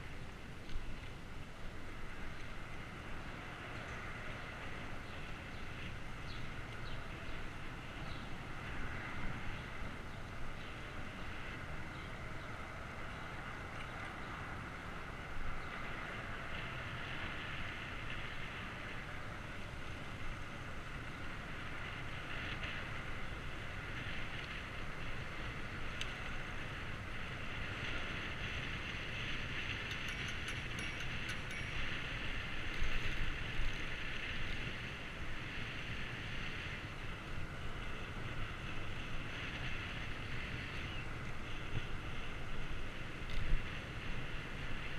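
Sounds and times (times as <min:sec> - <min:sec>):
bicycle road noise: 0:00.0 - 0:44.9
wind noise: 0:00.0 - 0:44.9
faint clicks: 0:25.9 - 0:26.2.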